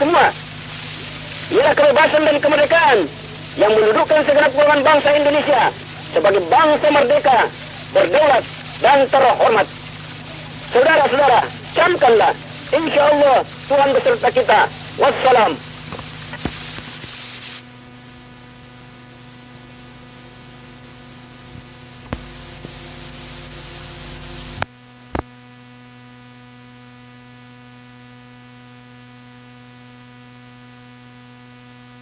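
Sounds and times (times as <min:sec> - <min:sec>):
recording hiss: 0:00.0 - 0:25.3
mains hum: 0:00.0 - 0:32.0.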